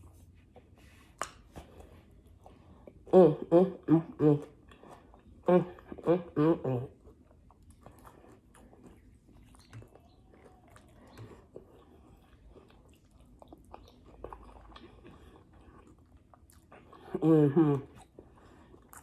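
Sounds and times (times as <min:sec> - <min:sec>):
chewing food: 0:00.0 - 0:19.0.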